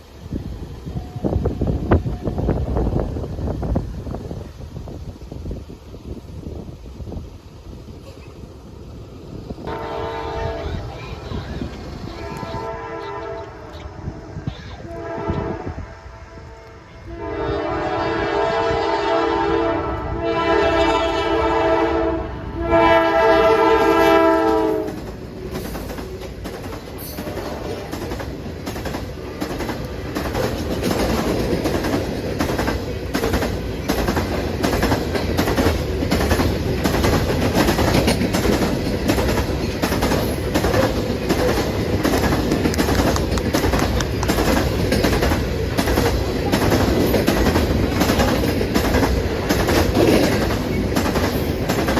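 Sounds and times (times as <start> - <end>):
freight train rumbling past: 0.0 - 51.9
locomotive air horn blasts: 9.7 - 11.0, 12.1 - 13.8, 14.8 - 25.0
wheels clicking over rails: 24.8 - 51.9.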